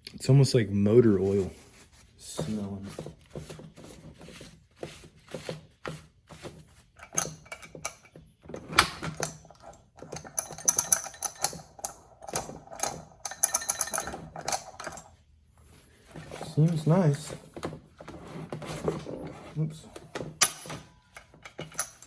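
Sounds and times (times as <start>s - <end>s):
chainsaw parts clinking when handled: 10.2s - 15.1s, 20.4s - 22.0s.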